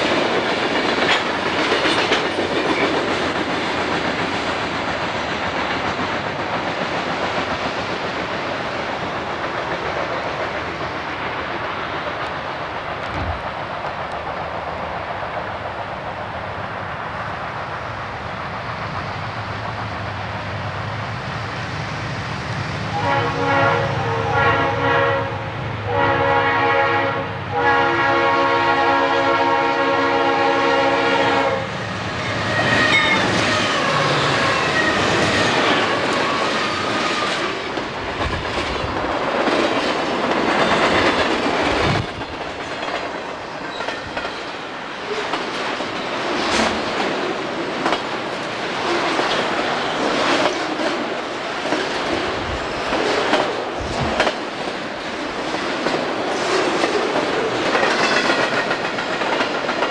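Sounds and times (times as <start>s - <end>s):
diesel locomotive engine rumble: 0.0s - 59.9s
train horn blasts: 22.9s - 31.7s.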